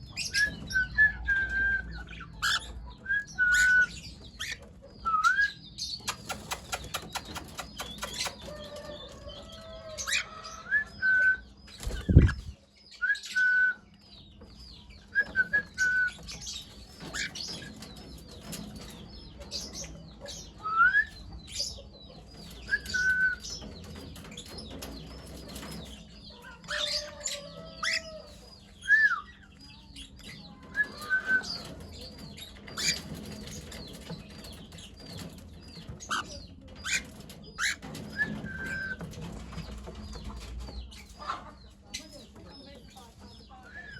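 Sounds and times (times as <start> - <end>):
cockatiels chirping: 1.9 - 8.4, 22.5 - 39.1.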